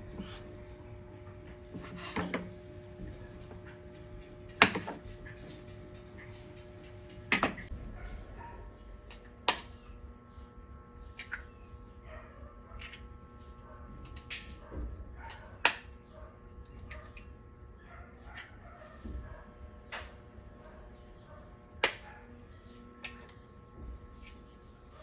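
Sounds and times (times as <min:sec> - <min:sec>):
faint steady hum: 0:00.0 - 0:25.0
sharp knocks and clicks: 0:04.6 - 0:07.7.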